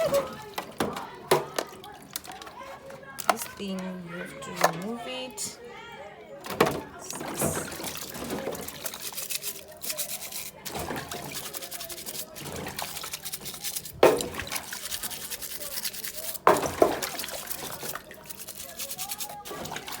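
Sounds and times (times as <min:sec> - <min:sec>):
scratchy rubbing scrubbing: 0:07.1 - 0:20.0.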